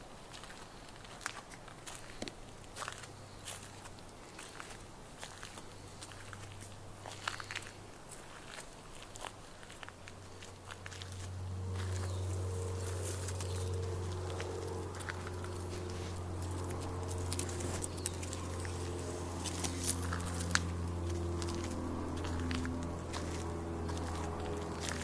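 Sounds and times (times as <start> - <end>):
footsteps on bush path: 0.2 - 25.0
road traffic engine drone: 3.1 - 25.0.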